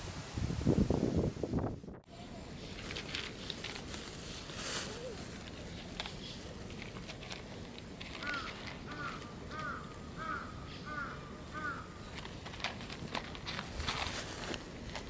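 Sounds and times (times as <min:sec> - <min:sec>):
faint clicks and rustling: 0:02.6 - 0:10.0, 0:12.0 - 0:15.0
bird calling: 0:08.2 - 0:12.3.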